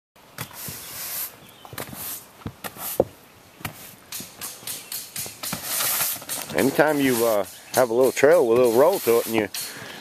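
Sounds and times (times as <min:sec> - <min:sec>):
footsteps and knocks: 0:01.6 - 0:06.7
scraping or rustling: 0:05.2 - 0:10.0.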